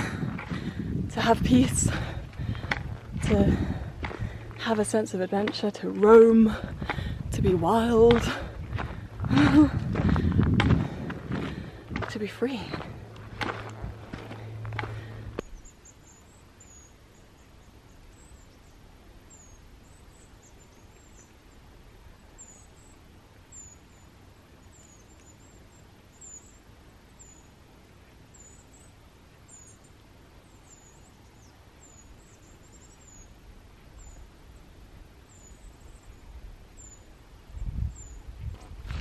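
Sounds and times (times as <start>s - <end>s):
faint low rumble: 0.0s - 26.6s.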